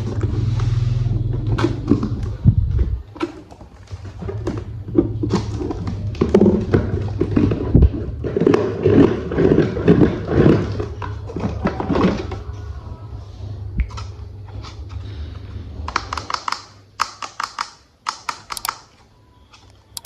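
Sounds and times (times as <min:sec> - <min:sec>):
steady low hum: 0:00.0 - 0:03.2, 0:03.8 - 0:17.0
plastic toy parts clicking: 0:15.9 - 0:20.0.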